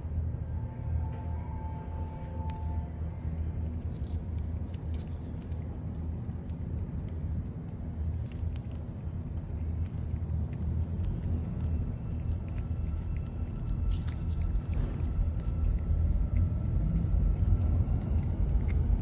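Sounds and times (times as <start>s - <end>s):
steady low hum: 0.0s - 19.0s
cat chewing: 3.6s - 19.0s.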